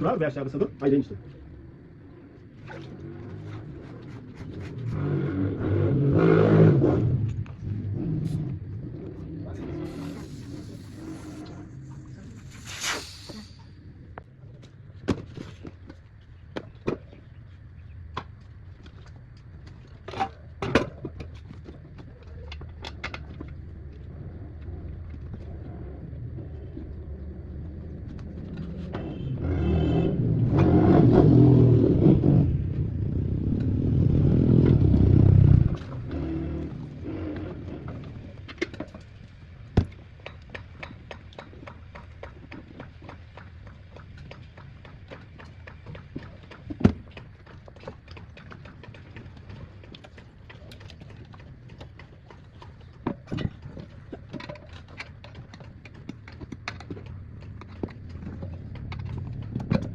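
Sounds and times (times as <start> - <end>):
loud low rumble: 5.0 - 14.2, 25.5 - 36.5.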